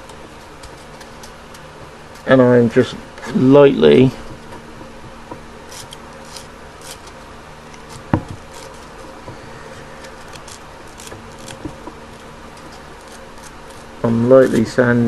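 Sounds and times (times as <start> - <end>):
steady low hum: 0.0 - 15.0
sandpaper scratching glass: 5.7 - 7.1, 7.8 - 9.2.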